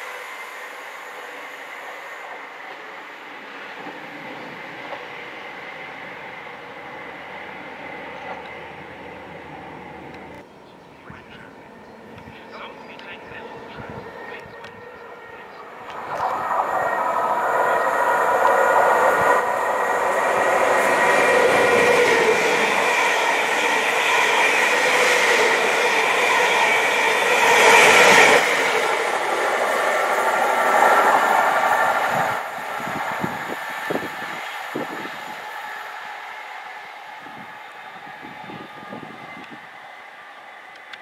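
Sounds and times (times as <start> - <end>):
rush of wheels on rail: 0.0 - 10.4, 12.2 - 41.0.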